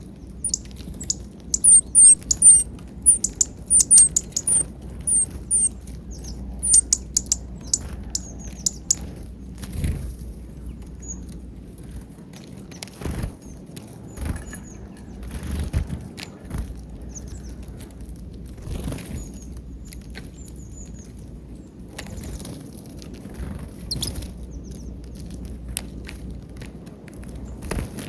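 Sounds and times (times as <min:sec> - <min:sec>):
small birds chirping: 0:00.0 - 0:09.1, 0:23.9 - 0:25.0
birds pecking taps and clicks: 0:00.5 - 0:05.7, 0:06.6 - 0:09.0.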